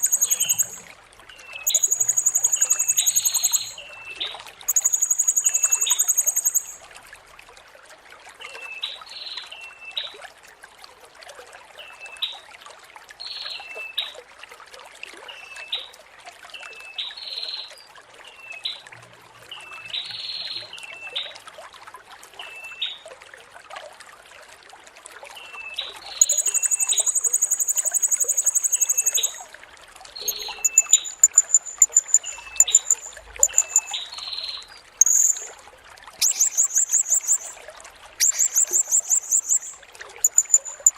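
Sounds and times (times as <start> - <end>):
trickling water: 0.0 - 40.9
high fast trill: 26.2 - 29.4, 30.3 - 34.0, 35.0 - 35.5, 36.2 - 37.6, 38.2 - 40.9
parrot calling: 36.2 - 37.6, 38.2 - 40.9.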